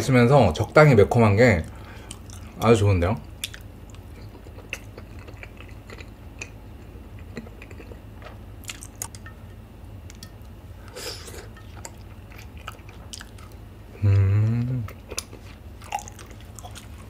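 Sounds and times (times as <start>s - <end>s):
low steady hum: 0.0s - 17.0s
chewing soft chewy food: 1.6s - 2.7s, 3.3s - 9.2s, 11.4s - 13.6s, 14.6s - 17.0s.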